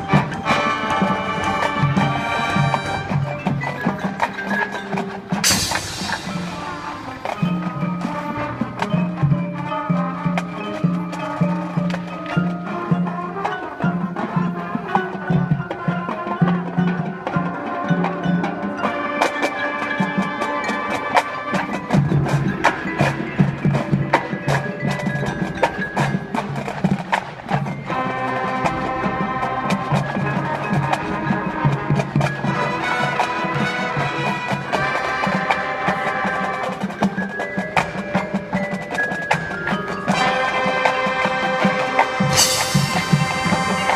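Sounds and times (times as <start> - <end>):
marching band playing: 0.0 - 43.9
percussion strokes: 0.0 - 43.9.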